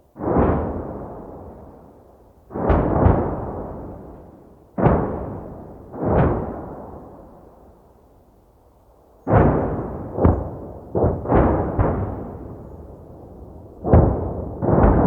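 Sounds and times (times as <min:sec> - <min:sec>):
sharp explosion booms: 0:09.3 - 0:15.0.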